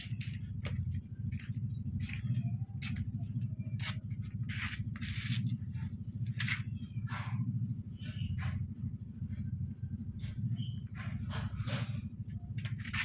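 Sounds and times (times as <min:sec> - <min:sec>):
hands scraping fan parts: 0:00.0 - 0:06.8, 0:11.1 - 0:13.0
steady low hum: 0:00.0 - 0:13.0.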